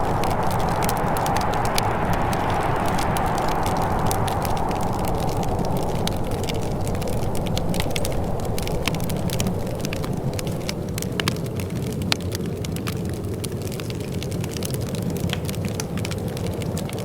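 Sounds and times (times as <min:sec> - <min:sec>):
steady low rumble: 0:00.0 - 0:12.1
wood fire crackling: 0:00.0 - 0:17.0.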